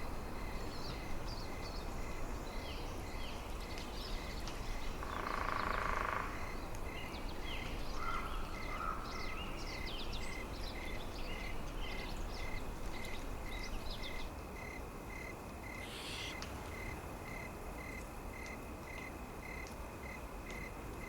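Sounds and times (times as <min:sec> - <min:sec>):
small birds chirping: 0:15.8 - 0:16.4.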